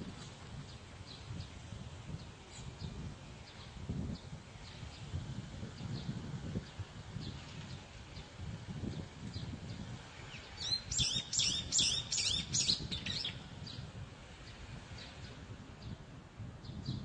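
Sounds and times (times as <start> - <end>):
bird chirping: 10.4 - 13.4.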